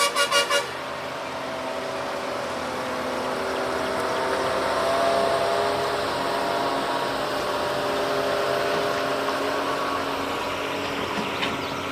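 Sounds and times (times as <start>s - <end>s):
pulsing horn: 0.0s - 1.0s
truck engine running: 0.0s - 11.9s.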